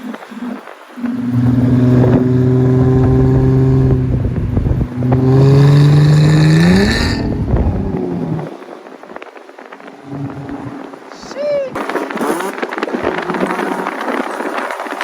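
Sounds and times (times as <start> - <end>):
car engine under load: 0.8 - 11.2.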